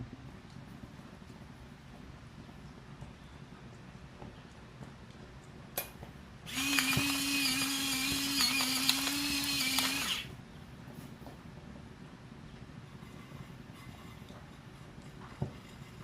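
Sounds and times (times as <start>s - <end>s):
small electric motor whirring: 6.5s - 10.3s.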